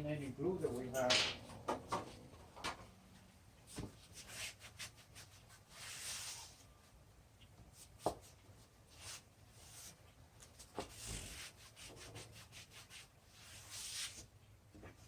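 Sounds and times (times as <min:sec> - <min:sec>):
rubbing and scraping on wood: 0:07.8 - 0:14.3.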